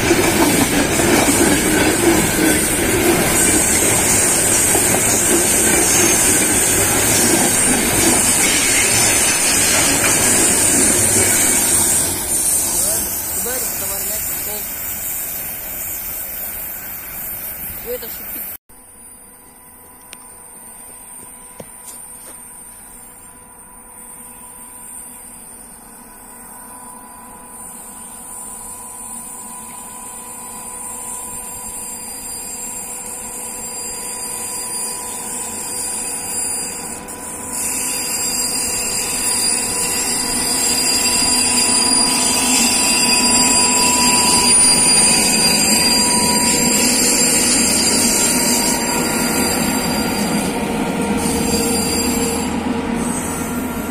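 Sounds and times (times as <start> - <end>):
freight train approaching: 0.0 - 18.6, 19.4 - 53.9
train rumbling: 0.0 - 18.6, 27.3 - 53.9
high-pitched wheel squeal: 2.4 - 18.4, 27.5 - 53.9.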